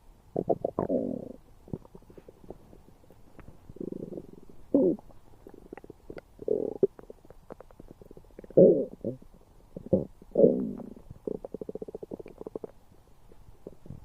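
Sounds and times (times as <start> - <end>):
stomach gurgling and rumbling: 0.3 - 12.8, 13.5 - 14.0
small pops and bubbling clicks: 5.0 - 8.6, 11.1 - 12.8.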